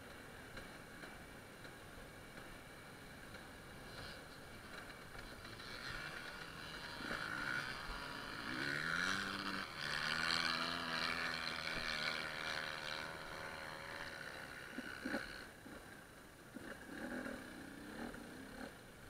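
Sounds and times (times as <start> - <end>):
motorcycle engine revving: 3.9 - 19.0.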